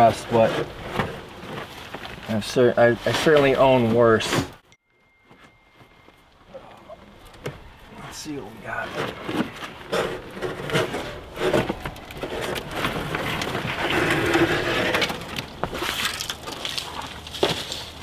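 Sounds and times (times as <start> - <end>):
dry mat crackling and crunching: 0.0 - 4.6, 5.3 - 18.0.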